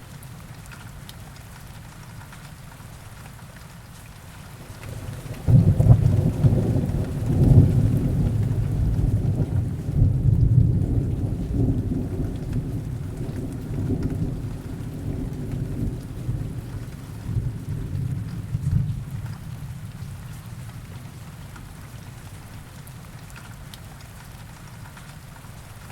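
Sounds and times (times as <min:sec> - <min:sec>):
heavy rain: 0:00.0 - 0:25.9
thunder rolling: 0:04.7 - 0:20.2.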